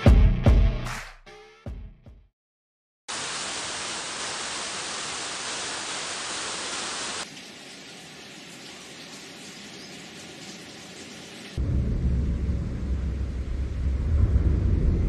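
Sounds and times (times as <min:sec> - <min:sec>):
steady hiss: 0:03.1 - 0:11.7.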